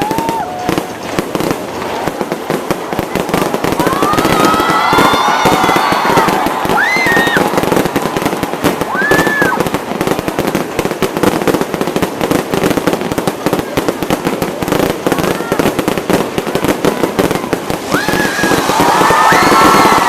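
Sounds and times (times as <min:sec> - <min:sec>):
fireworks crackling bangs: 0:00.0 - 0:20.0
fireworks whistles: 0:03.3 - 0:11.9, 0:15.1 - 0:20.0.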